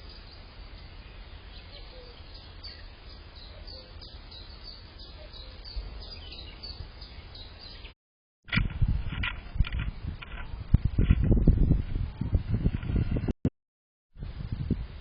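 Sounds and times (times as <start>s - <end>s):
small birds chirping: 0.0s - 8.0s.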